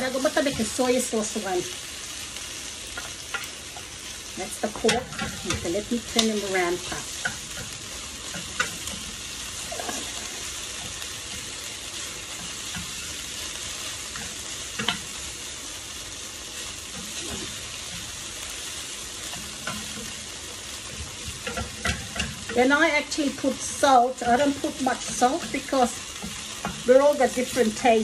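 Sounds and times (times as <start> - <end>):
food sizzling in a frying pan: 0.0 - 28.0
spatula clicking against pan: 21.4 - 22.6
wooden spatula stirring: 23.8 - 27.6.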